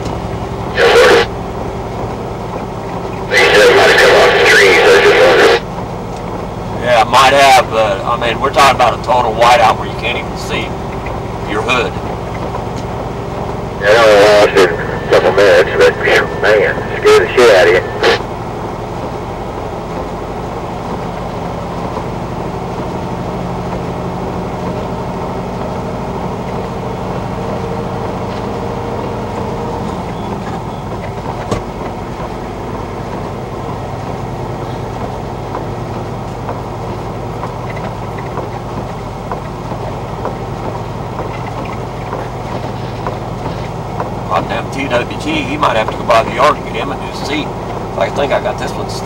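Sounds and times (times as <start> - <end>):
diesel truck engine running: 0.0 - 49.0
road noise: 0.0 - 49.0.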